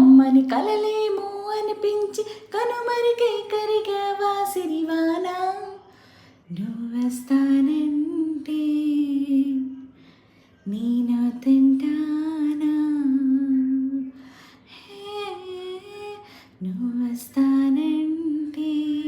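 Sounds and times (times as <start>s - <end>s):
woman singing wordless notes: 0.0s - 5.8s, 10.6s - 19.0s.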